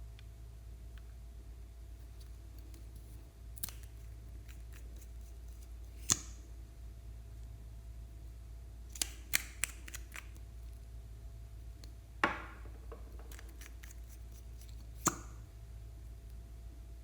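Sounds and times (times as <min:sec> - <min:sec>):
crackling snap: 0:08.9 - 0:10.5.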